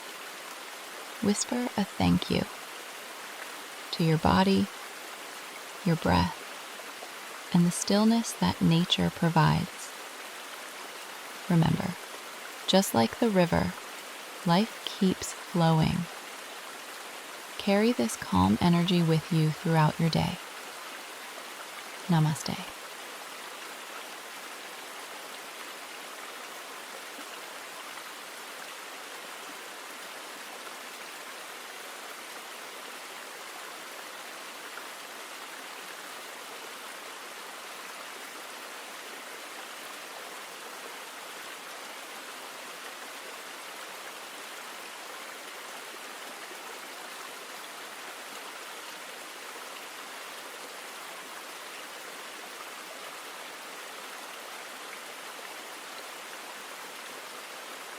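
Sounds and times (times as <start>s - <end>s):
river flowing: 0.0s - 57.9s.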